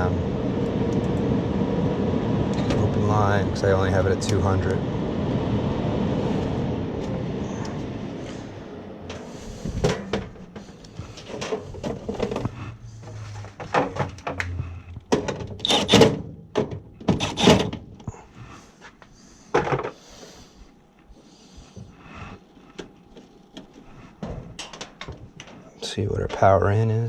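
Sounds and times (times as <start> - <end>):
low hum: 0.0 - 18.6.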